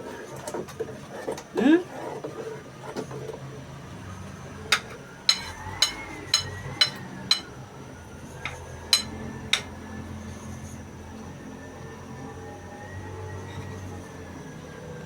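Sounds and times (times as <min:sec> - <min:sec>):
utensil tapping cookware: 0:04.7 - 0:07.6, 0:08.4 - 0:09.8.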